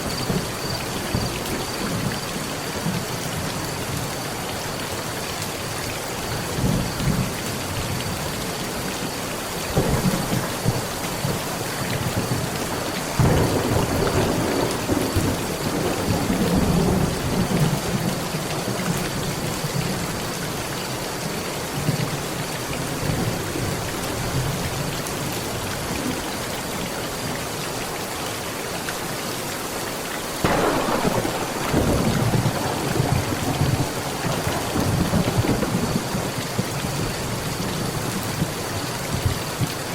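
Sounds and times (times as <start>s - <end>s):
heavy rain on a metal roof: 0.0s - 39.9s
rolling thunder: 9.7s - 18.2s, 30.4s - 38.6s.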